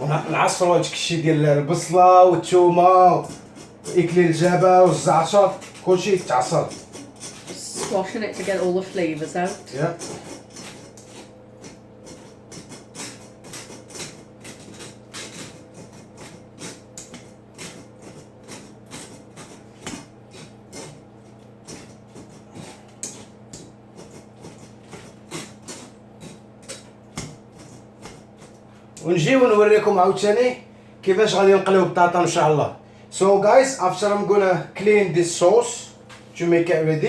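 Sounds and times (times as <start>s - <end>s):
utensil scraping cookware: 1.8s - 29.7s.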